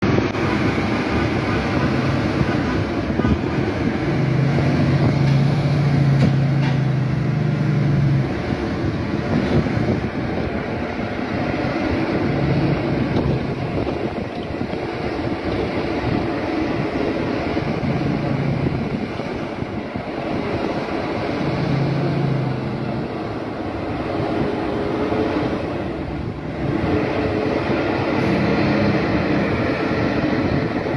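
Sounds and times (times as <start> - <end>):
diesel truck engine rumbling: 0.0 - 30.9.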